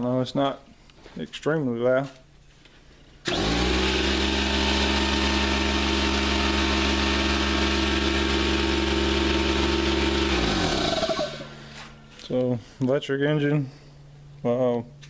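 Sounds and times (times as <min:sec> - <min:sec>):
air compressor motor running: 0:03.2 - 0:12.3.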